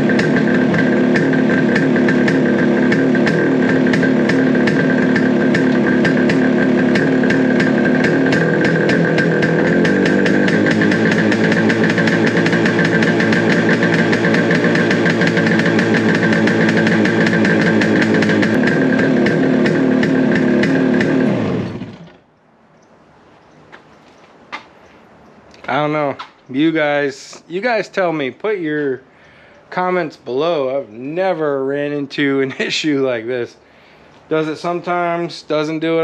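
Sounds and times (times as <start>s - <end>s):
two-stroke engine idling: 0.0s - 22.3s.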